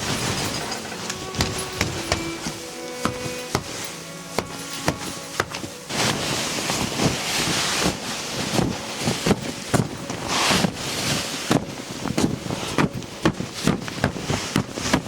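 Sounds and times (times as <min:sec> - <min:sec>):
crunching thumps: 0:00.0 - 0:07.2
wind gusting over microphone: 0:05.8 - 0:15.0.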